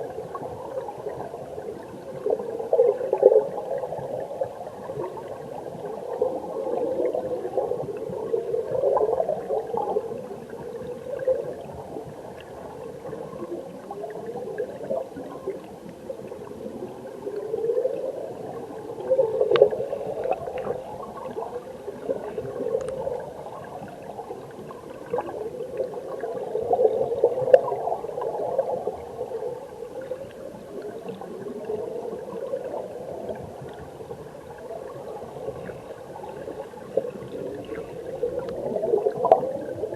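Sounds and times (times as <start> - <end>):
underwater stream gurgling: 0.0 - 39.9
faint ticks: 19.4 - 21.4, 22.0 - 23.2, 35.5 - 39.7.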